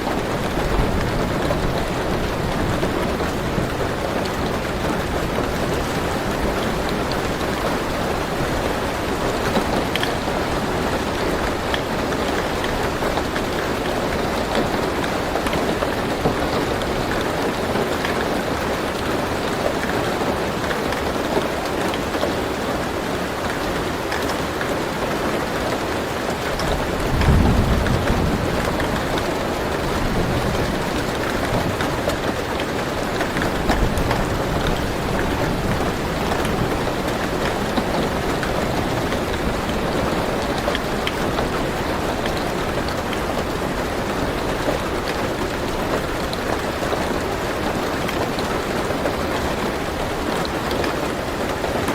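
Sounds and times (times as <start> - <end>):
rain on a car roof: 0.0 - 51.9
raindrop ticks: 26.4 - 47.2
low rumble of thunder: 26.6 - 32.3.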